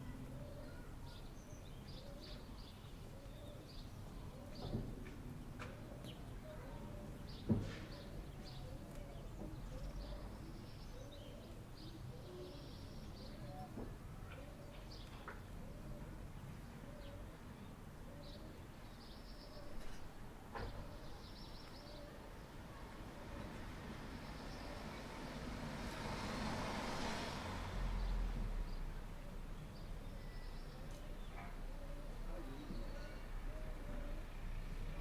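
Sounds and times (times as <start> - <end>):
birds calling: 29.6 - 35.0.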